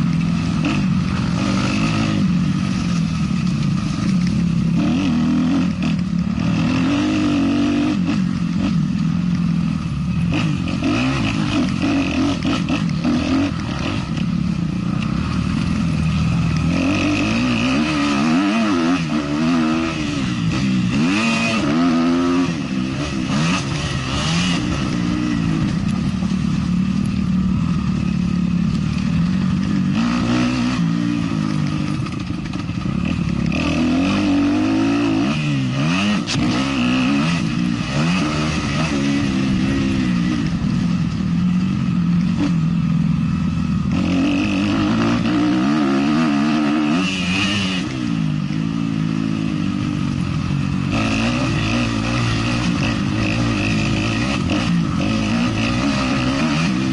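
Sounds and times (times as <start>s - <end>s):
motocross bike engine revving: 0.0s - 56.9s.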